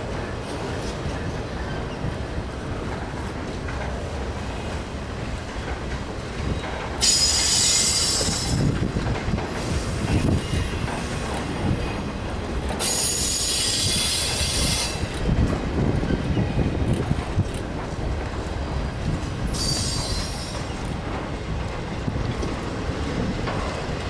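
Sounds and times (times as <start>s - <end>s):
freight train rumbling past: 0.0s - 24.0s
wheels clicking over rail joints: 0.1s - 24.0s
steel wheels squealing: 6.5s - 11.5s, 12.8s - 15.3s, 19.4s - 21.0s.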